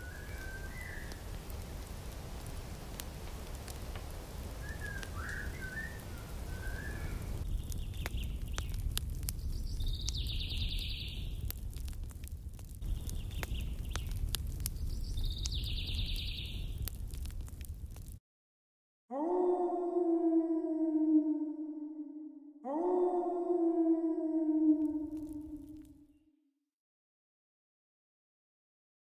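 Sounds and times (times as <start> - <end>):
birds chirping: 0.0 - 1.3, 4.6 - 11.5, 12.8 - 16.8
higher bird calls: 4.6 - 7.4.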